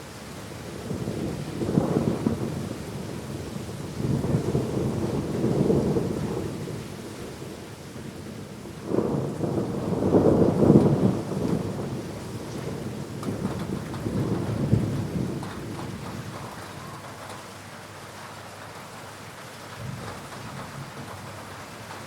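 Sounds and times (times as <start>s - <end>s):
heavy rain: 0.0s - 22.0s
thunder rolling: 0.8s - 6.8s, 8.6s - 17.4s, 19.7s - 22.0s.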